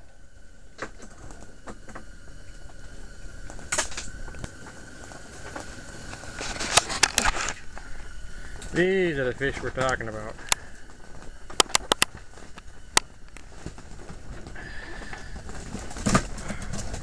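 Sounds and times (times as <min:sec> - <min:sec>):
faint steady hum: 0:00.0 - 0:17.0
fish and tackle handling noises: 0:00.8 - 0:17.0
sharp clicks: 0:11.5 - 0:13.5.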